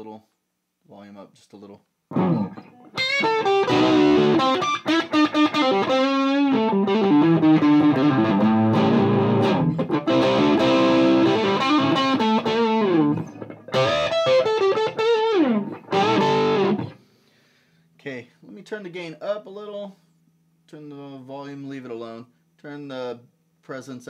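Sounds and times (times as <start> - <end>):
overdriven electric guitar: 2.1 - 17.0.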